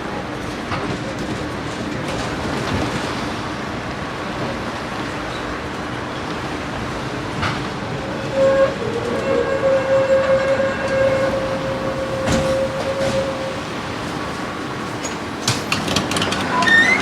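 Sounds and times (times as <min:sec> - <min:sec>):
tram running on rails: 0:00.0 - 0:17.0
long steady pitched tone: 0:10.7 - 0:15.7.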